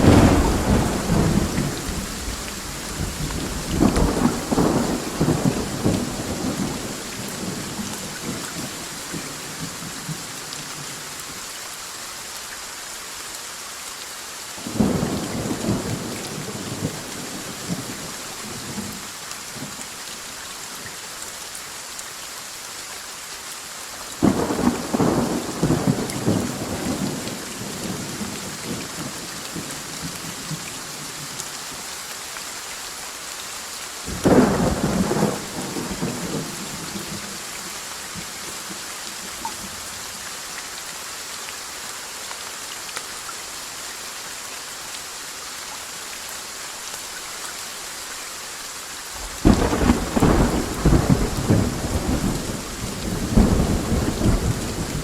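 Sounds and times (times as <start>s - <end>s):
thunderclaps rumbling: 0.0s - 7.6s, 34.1s - 36.8s, 49.2s - 55.0s
steady rain: 0.0s - 55.0s.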